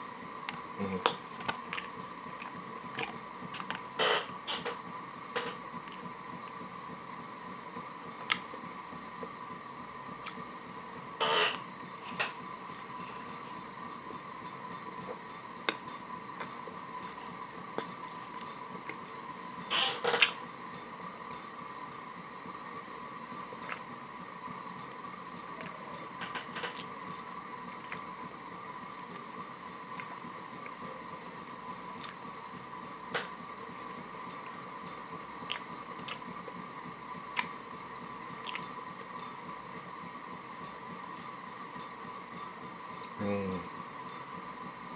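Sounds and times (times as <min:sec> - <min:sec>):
person chewing food: 0:01.4 - 0:03.7, 0:32.0 - 0:32.2, 0:35.4 - 0:36.3, 0:38.3 - 0:38.7
wet mouth clicks and smacks: 0:35.5 - 0:36.2, 0:38.4 - 0:38.7
person chewing: 0:38.4 - 0:38.7.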